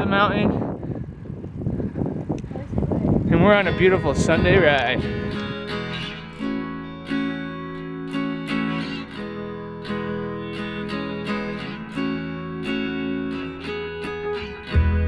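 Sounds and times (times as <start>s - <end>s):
acoustic guitar strumming chords: 3.6s - 15.0s.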